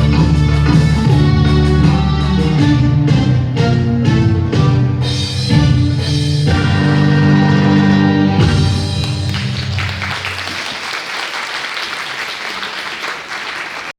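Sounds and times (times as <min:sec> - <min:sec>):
dance music: 0:08.3 - 0:10.6
audience applause: 0:08.8 - 0:13.9.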